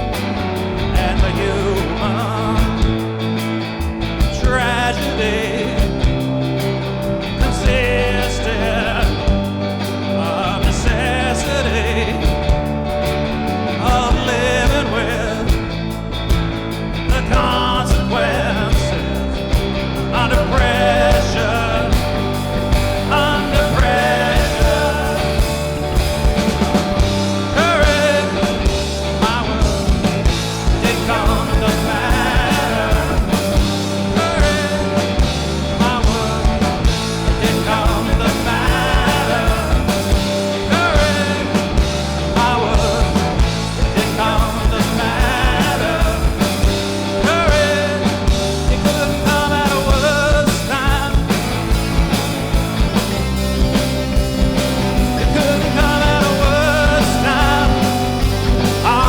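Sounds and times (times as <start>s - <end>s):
live rock band playing: 0.0s - 59.0s
drum beats: 12.2s - 59.0s
pitch-bending lead melody: 20.7s - 59.0s.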